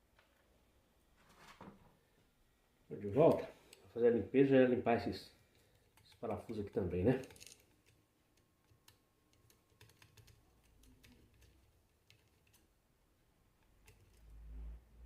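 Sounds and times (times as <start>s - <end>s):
small metal parts clicking: 5.5s - 8.0s.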